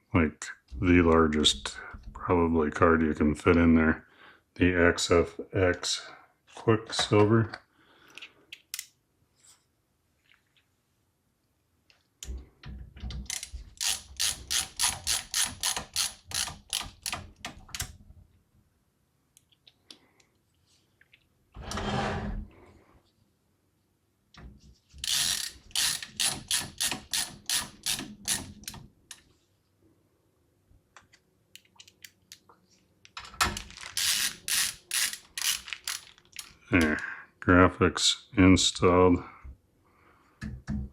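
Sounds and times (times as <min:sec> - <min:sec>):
ratcheting screwdriver clicking: 0:13.3 - 0:17.2, 0:25.0 - 0:28.8, 0:34.0 - 0:36.5.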